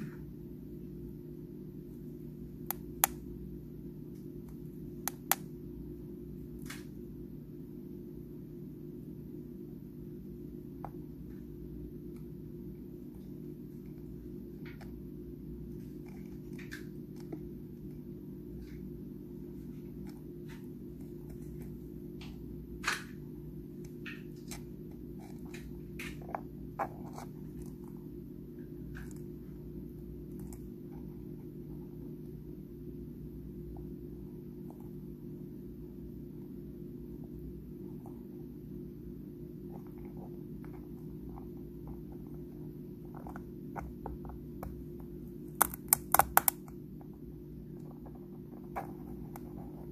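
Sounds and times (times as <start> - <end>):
steady low hum: 0.0 - 49.9
crab claws crunching food: 45.5 - 46.7.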